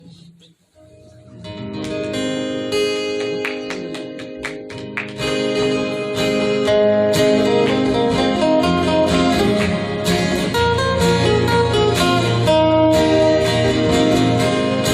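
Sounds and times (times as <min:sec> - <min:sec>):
acoustic guitar strumming: 0:00.0 - 0:14.9.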